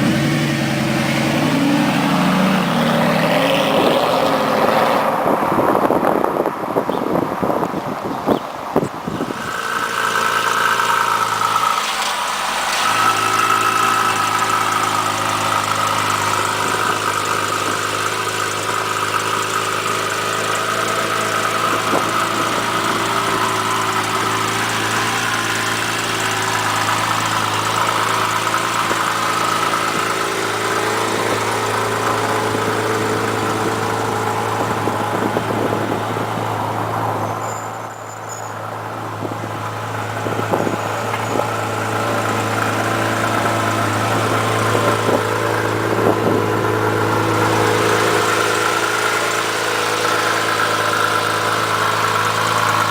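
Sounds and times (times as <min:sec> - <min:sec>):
car engine running: 0:00.0 - 0:52.9.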